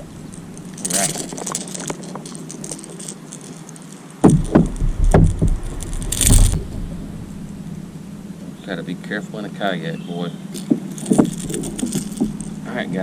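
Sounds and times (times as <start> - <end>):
crackly rattle: 0.0 - 13.0
thumps and knocks against kayak: 4.2 - 7.5.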